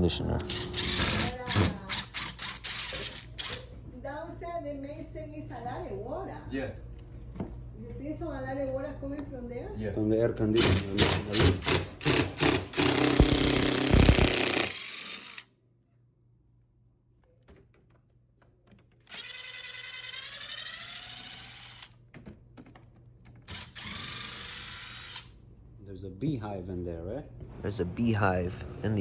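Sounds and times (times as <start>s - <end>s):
power drill running: 0.5s - 3.7s, 10.6s - 15.5s, 19.1s - 21.9s, 23.5s - 25.3s.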